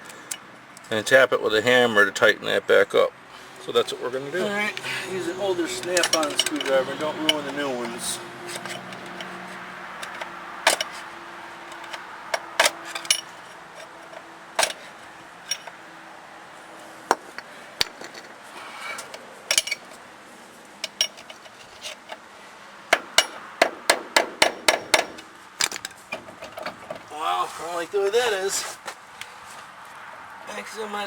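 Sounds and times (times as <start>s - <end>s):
hand tools clinking on metal: 4.4s - 15.8s, 18.9s - 20.0s, 20.8s - 22.2s, 23.0s - 23.4s.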